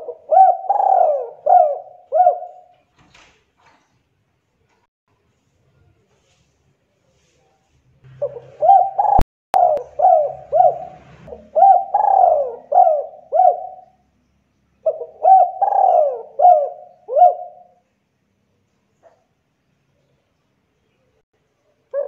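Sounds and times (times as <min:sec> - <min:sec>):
dove cooing: 0:00.0 - 0:02.7, 0:08.1 - 0:14.0, 0:14.8 - 0:17.8.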